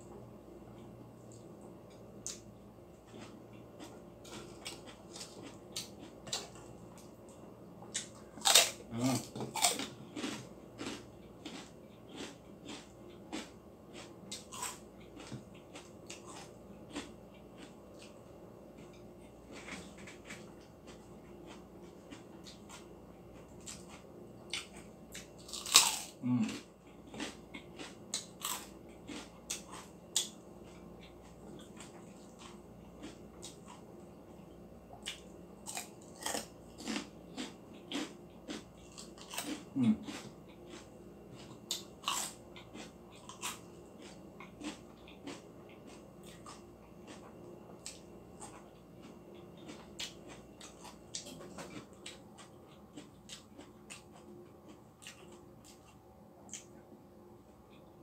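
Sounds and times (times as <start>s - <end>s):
chewing: 3.0s - 56.8s
crunching crispy food: 8.0s - 18.2s, 19.5s - 33.8s, 35.0s - 47.3s.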